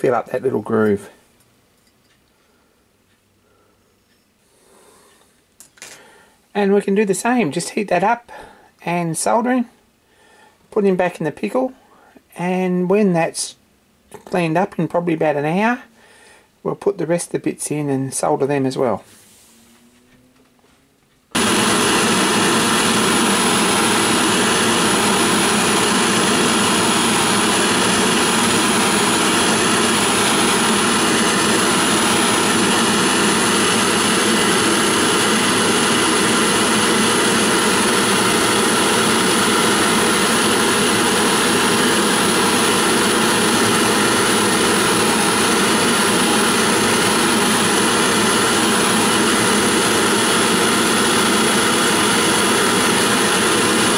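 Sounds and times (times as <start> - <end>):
gas torch roaring: 21.3 - 53.9.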